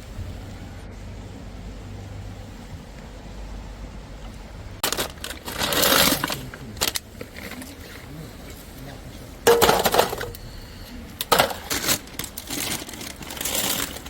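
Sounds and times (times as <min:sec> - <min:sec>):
outdoor background noise: 0:00.0 - 0:14.0
rustling clattering handling noise: 0:04.2 - 0:14.0.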